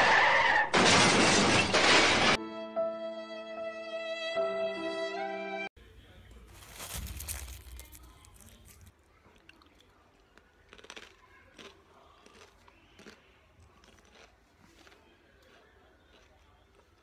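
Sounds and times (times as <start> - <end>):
chewing crisp snack: 6.5 - 17.0.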